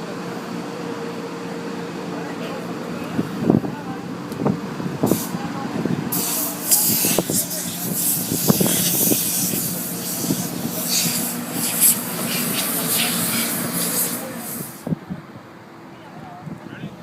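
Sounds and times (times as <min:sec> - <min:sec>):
steady machine hum: 0:00.0 - 0:14.9
pressure washer spray hissing: 0:06.1 - 0:14.8.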